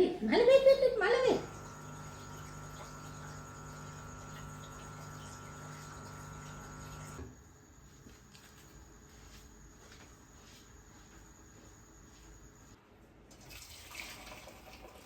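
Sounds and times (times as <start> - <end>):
steady hum: 1.1 - 12.8
faint high whine: 1.2 - 12.8.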